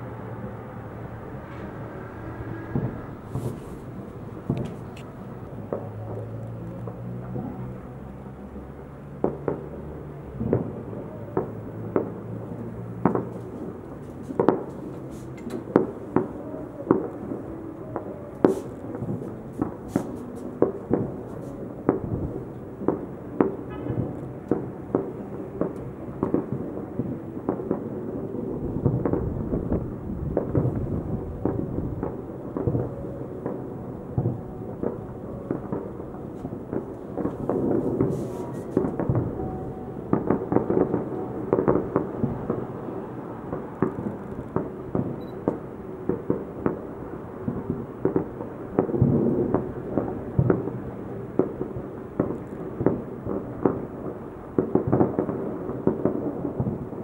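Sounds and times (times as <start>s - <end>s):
firework shells bursting: 2.7s - 6.2s, 34.2s - 39.4s.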